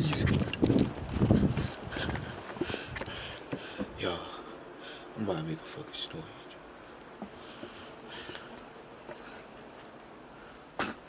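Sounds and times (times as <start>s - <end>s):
soft breaths close to microphone: 1.2s - 5.2s, 6.1s - 10.8s.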